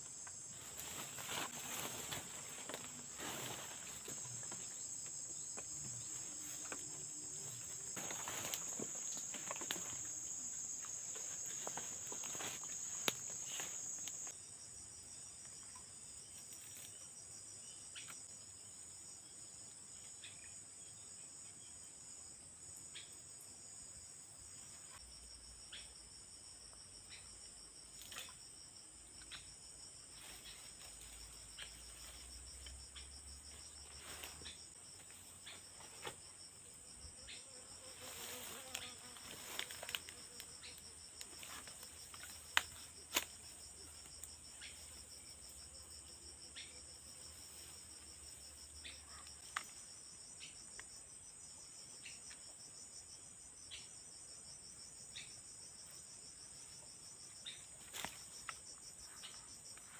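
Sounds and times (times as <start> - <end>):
insects chirping: 0.0 - 59.9.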